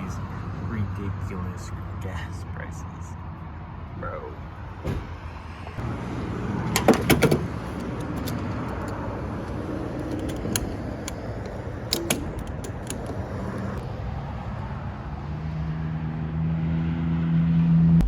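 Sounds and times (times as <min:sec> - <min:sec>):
car hum: 0:00.0 - 0:14.0
sharp clicks and clunks: 0:06.7 - 0:13.8.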